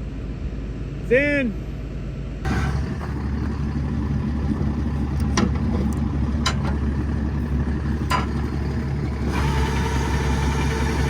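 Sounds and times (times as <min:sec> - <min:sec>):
high mechanical hum: 0:00.0 - 0:11.0
large engine idling: 0:02.4 - 0:11.0.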